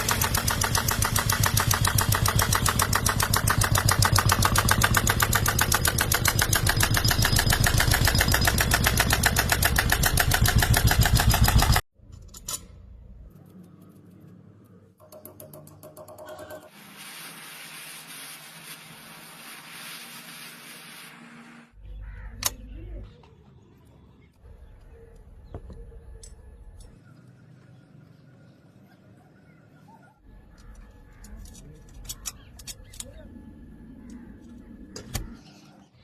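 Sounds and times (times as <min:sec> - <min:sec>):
model steam engine chuffing: 0:00.0 - 0:11.8
single click: 0:22.4 - 0:22.6.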